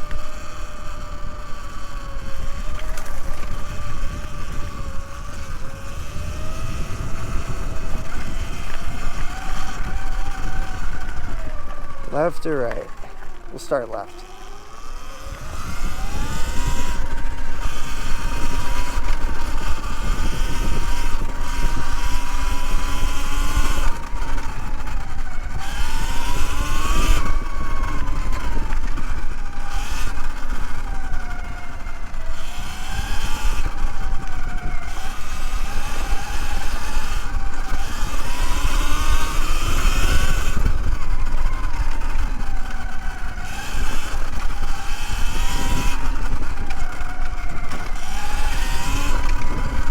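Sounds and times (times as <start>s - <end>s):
electric motor whine: 0.0s - 49.9s
wind and tyre rumble: 0.0s - 49.9s.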